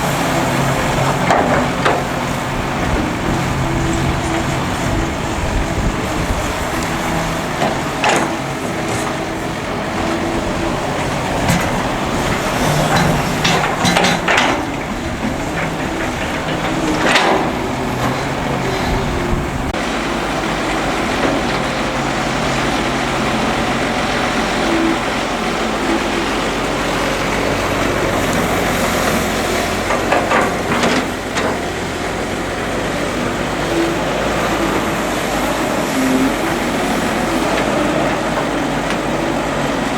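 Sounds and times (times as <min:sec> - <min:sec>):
excavator diesel engine running: 0:00.0 - 0:39.9
metallic clanks and scrapes: 0:11.0 - 0:19.8.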